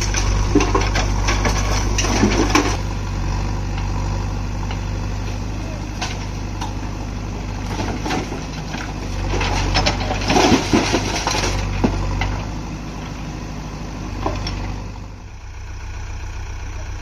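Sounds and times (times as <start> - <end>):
diesel engine running: 0.0 - 17.0
engine clattering and knocks: 0.0 - 17.0.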